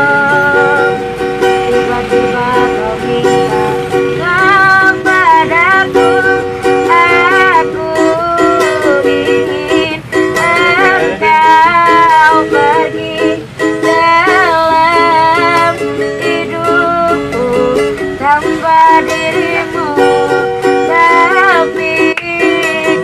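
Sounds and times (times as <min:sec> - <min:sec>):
person singing slow melody: 0:00.0 - 0:23.0
strummed ukulele: 0:00.0 - 0:23.0.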